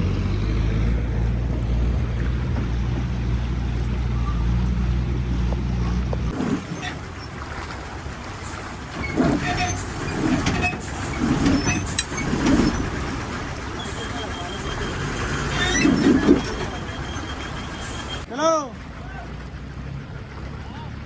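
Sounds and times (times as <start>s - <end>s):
heavy vehicle engine running: 0.0s - 21.0s.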